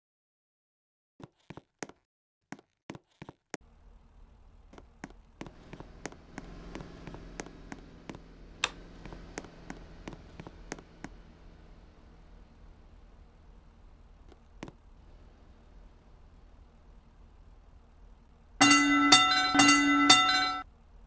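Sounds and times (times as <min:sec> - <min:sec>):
low steady rumble: 0:03.6 - 0:21.0
level crossing sharp clicks: 0:04.8 - 0:11.3.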